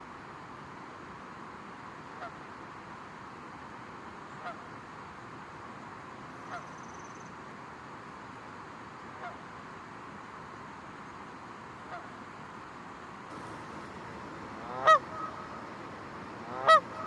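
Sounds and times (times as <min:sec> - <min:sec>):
steady outdoor hiss: 0:00.0 - 0:17.0
goose honking: 0:13.3 - 0:17.0.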